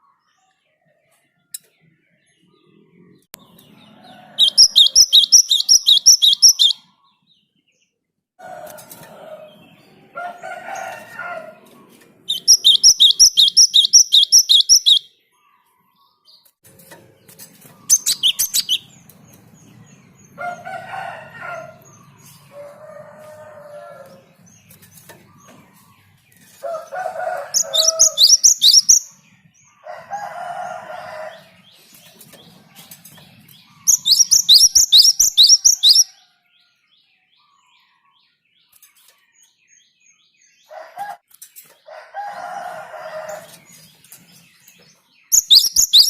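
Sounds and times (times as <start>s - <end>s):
lower bird calls: 4.2s - 7.0s, 12.3s - 15.1s, 17.7s - 19.0s, 27.4s - 29.2s, 33.6s - 36.1s, 45.3s - 46.0s
sparrow singing rapid high notes: 4.4s - 6.8s, 12.3s - 15.1s, 17.9s - 18.9s, 27.5s - 29.2s, 33.9s - 36.1s, 45.4s - 46.0s.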